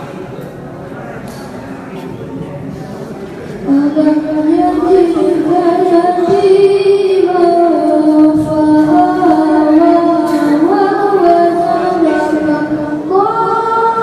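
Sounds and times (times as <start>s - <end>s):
girl reciting melodically: 3.6s - 14.0s.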